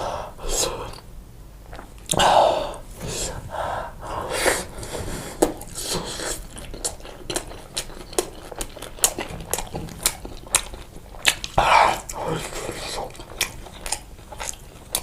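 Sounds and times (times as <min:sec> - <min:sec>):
chewing with mouth clicks: 0:05.5 - 0:15.0.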